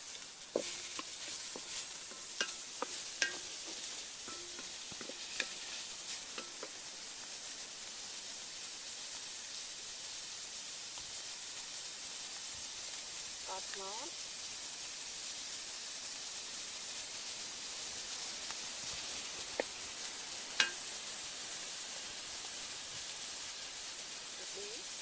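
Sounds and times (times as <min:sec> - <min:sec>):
spatula scraping a wok: 0:00.0 - 0:07.1, 0:20.6 - 0:21.1
meat sizzling in a wok: 0:00.0 - 0:25.0.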